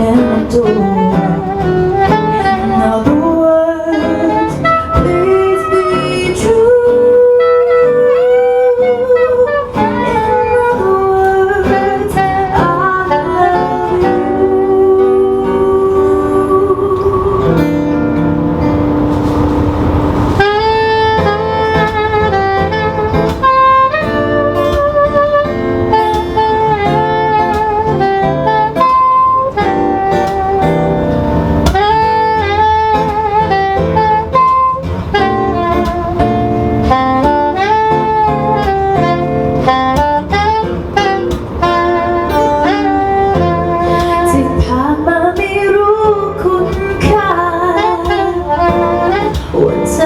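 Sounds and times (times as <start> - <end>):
acoustic guitar accompaniment: 0.0 - 50.0
saxophone melody: 0.0 - 50.0.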